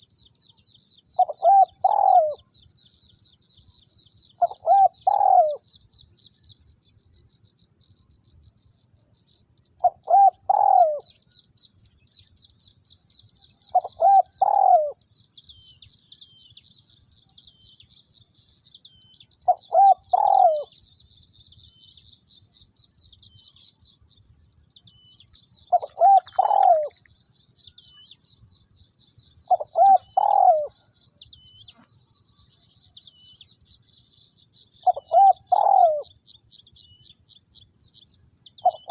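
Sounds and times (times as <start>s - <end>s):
dove cooing: 1.2s - 2.5s, 4.4s - 5.6s, 9.8s - 11.2s, 13.7s - 15.0s, 19.4s - 20.8s, 25.6s - 27.0s, 29.4s - 30.9s, 34.8s - 36.1s, 38.6s - 38.9s.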